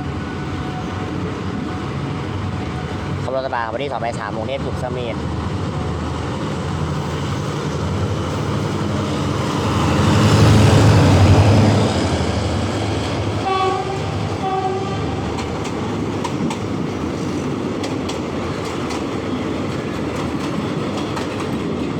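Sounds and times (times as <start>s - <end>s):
diesel train engine: 0.0s - 21.9s
wheels clacking over rail joints: 5.2s - 21.9s
train horn blasts: 13.4s - 15.3s.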